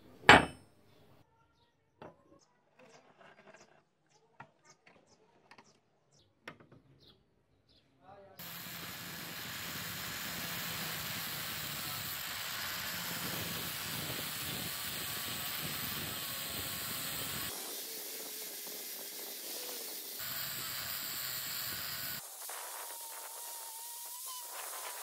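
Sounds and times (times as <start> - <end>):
angle grinder grinding steel: 8.4 - 25.0.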